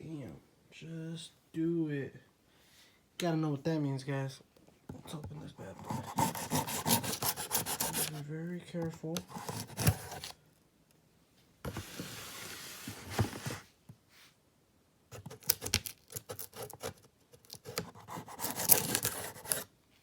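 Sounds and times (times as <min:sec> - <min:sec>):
cardboard rustling: 0:04.9 - 0:10.4, 0:11.7 - 0:13.8, 0:15.2 - 0:19.7
cardboard box rubbing scrape: 0:05.7 - 0:08.2, 0:09.2 - 0:10.4, 0:11.7 - 0:13.7, 0:17.6 - 0:19.7.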